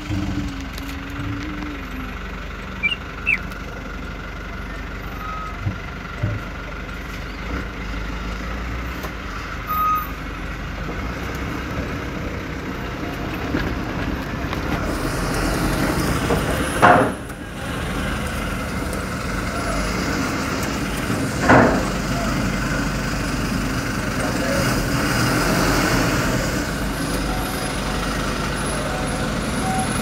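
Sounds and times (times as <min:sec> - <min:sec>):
low engine rumble: 0:00.0 - 0:30.0
short high beep: 0:05.2 - 0:05.6.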